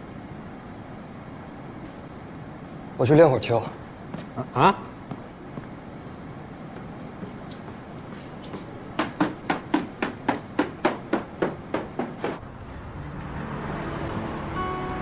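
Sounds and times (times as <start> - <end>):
sharp knocks: 8.4 - 12.4.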